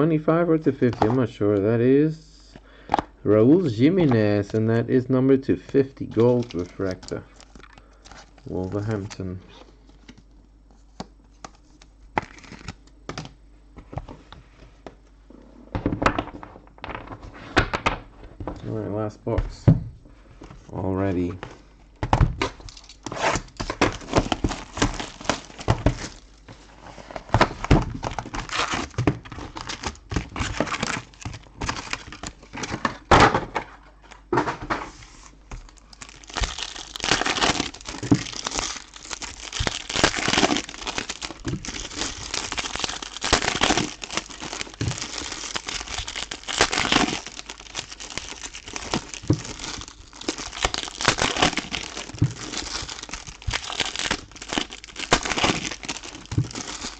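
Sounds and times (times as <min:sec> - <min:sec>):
packaging crinkling and tearing: 0:05.9 - 0:09.2, 0:11.3 - 0:13.0, 0:22.4 - 0:33.1, 0:35.1 - 0:56.9.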